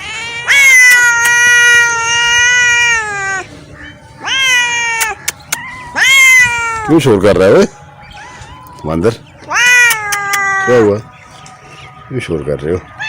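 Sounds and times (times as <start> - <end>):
cat yowling: 0.0 - 3.6, 4.2 - 7.1, 8.0 - 11.1.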